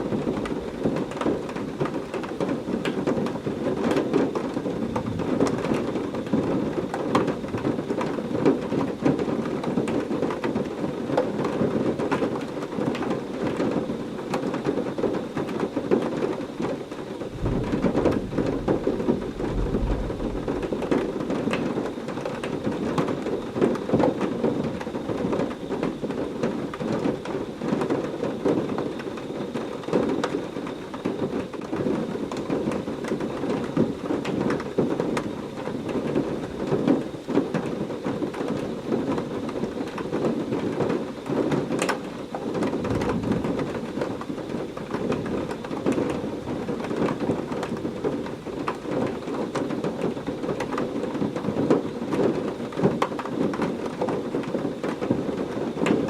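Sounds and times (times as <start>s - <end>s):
heavy rain falling: 0.0s - 29.2s, 31.0s - 56.0s
distant thunder rumbling: 4.3s - 7.6s, 17.2s - 23.8s.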